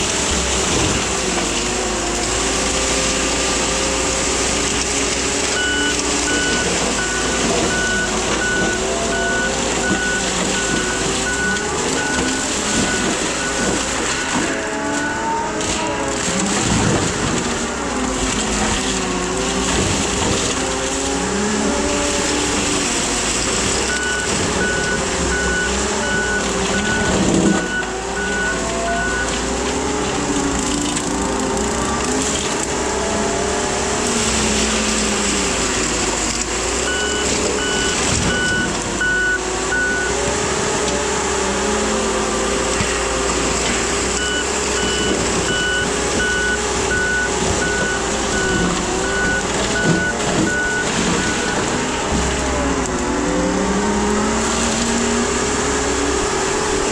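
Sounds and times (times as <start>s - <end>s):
skid steer engine running: 0.0s - 56.9s
backup alarm beeping: 5.6s - 15.2s, 23.9s - 29.4s, 36.9s - 40.2s, 44.2s - 51.8s.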